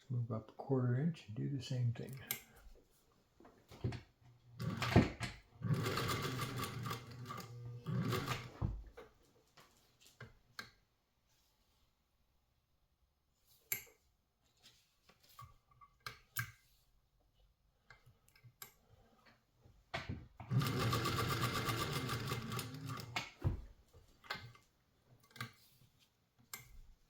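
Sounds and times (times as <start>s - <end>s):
sewing machine stitching: 4.6s - 8.6s, 20.4s - 23.4s.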